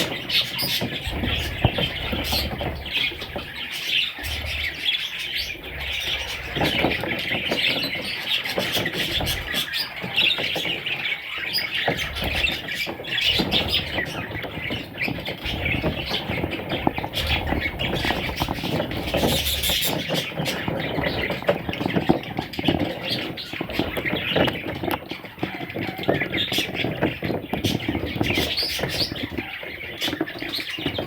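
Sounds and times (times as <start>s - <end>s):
parrots chirping and chattering: 0.0s - 31.0s.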